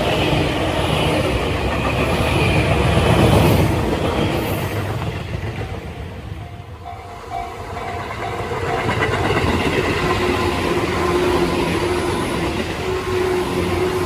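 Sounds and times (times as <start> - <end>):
electric train passing: 0.0 - 14.0
level crossing warning bell: 6.4 - 10.2.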